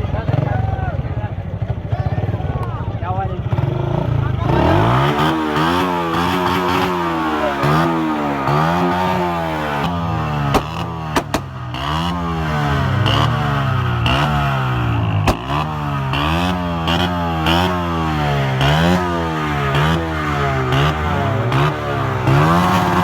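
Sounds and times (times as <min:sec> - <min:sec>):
vehicle engine revving: 0:03.5 - 0:23.0
sharp cracks: 0:08.4 - 0:12.4, 0:14.0 - 0:16.6.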